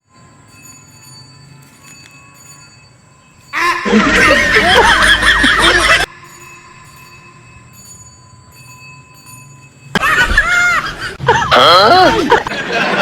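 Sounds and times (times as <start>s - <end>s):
group of people laughing: 3.6s - 6.1s, 10.0s - 13.0s.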